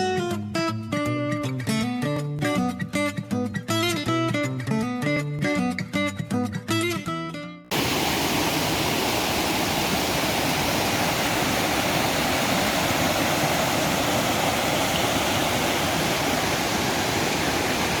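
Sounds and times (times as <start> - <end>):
waterfall rushing: 7.7 - 18.0.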